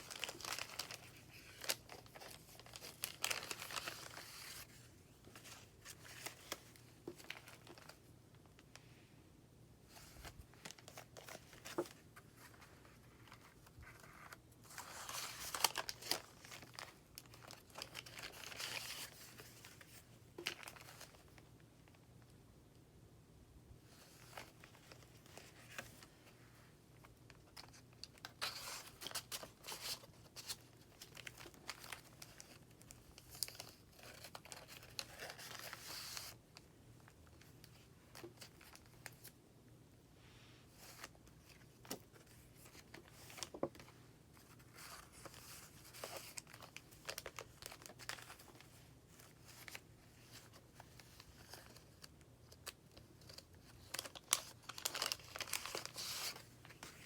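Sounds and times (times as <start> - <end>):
paper pages rustling: 0.0 - 8.0, 9.9 - 21.3, 27.4 - 36.4, 40.7 - 57.0.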